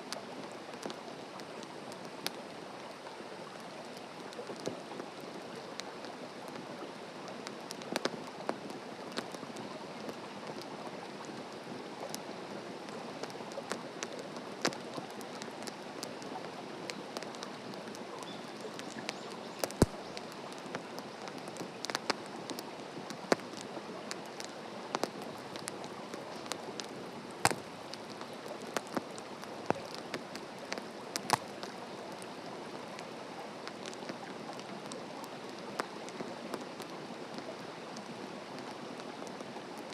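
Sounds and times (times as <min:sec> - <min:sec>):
wood fire crackling: 0:00.0 - 0:39.9
loud fire snaps: 0:07.2 - 0:12.3, 0:13.2 - 0:33.0, 0:33.6 - 0:39.9.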